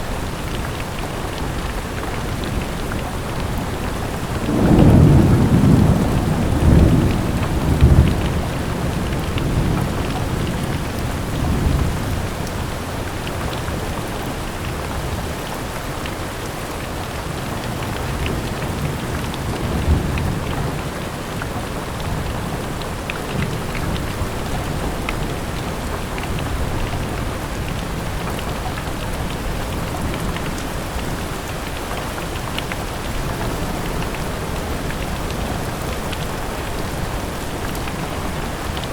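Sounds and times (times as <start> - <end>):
steady rain falling: 0.0 - 38.9
low rumbles of thunder: 2.3 - 12.8.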